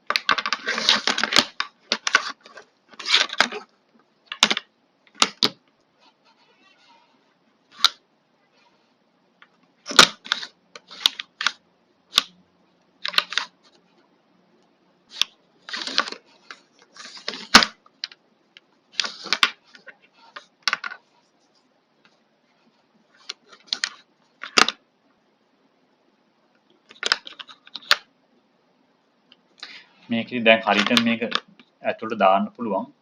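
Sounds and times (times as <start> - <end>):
plastic parts clicking and scraping: 0.1 - 3.7, 13.0 - 13.8, 15.1 - 18.2, 18.9 - 21.1, 23.1 - 24.8, 26.8 - 28.1, 30.5 - 31.7.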